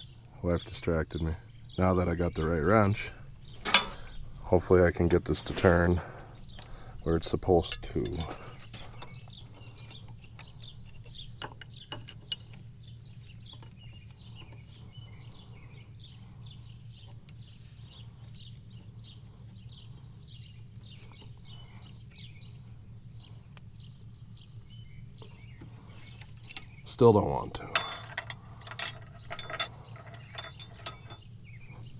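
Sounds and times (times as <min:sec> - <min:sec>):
birds chirping: 0:00.0 - 0:31.9
steady low hum: 0:00.0 - 0:31.9
wrench clinking on metal fitting: 0:07.6 - 0:08.4, 0:27.6 - 0:31.2.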